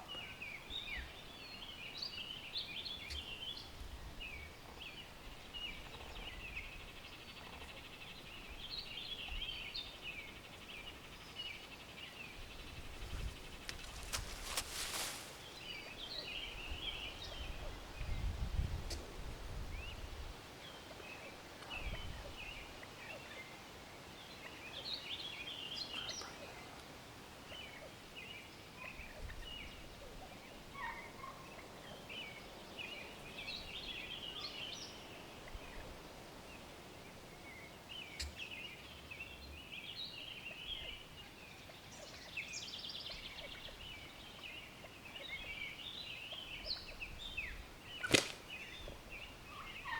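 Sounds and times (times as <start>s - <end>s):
turkeys gobbling: 30.0s - 31.8s.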